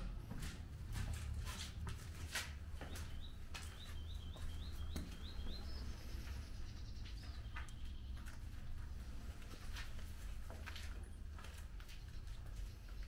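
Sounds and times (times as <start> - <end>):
soft footsteps: 0.0 - 13.0
songbird singing: 2.6 - 9.6.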